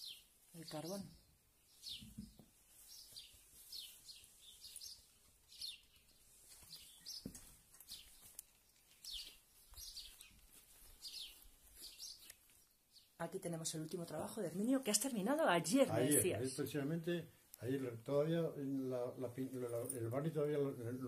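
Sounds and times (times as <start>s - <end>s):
small bird chirping: 0.0s - 13.2s.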